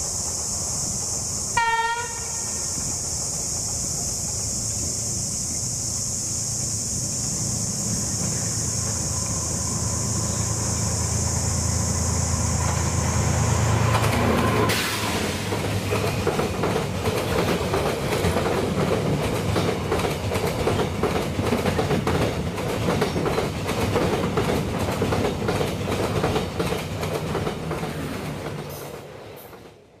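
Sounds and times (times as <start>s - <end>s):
high steady hiss: 0.0s - 21.7s
diesel locomotive engine passing: 0.0s - 30.0s
train wheels clacking over rail joints: 13.8s - 29.9s.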